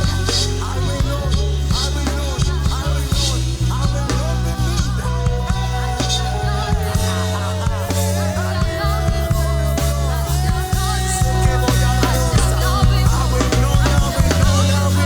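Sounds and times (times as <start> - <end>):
person singing: 0.0 - 15.0
worship band playing: 0.0 - 15.0.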